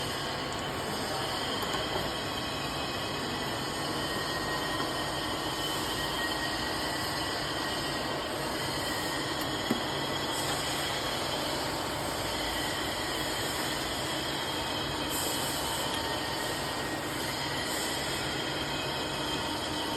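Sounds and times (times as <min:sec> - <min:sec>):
milling machine humming and whining: 0:00.0 - 0:19.9.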